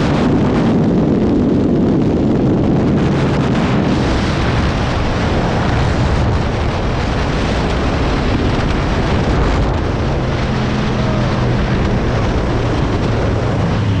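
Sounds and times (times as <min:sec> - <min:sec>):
wind rushing over microphone: 0:00.0 - 0:14.0
moped engine droning: 0:07.9 - 0:14.0.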